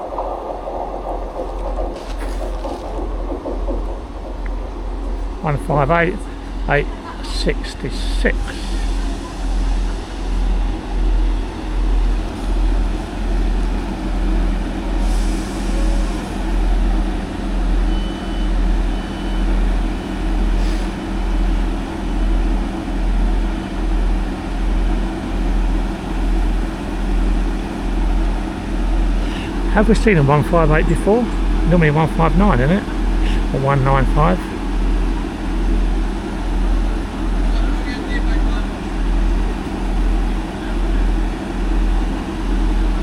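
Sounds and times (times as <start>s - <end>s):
diesel engine idling: 0.0s - 43.0s.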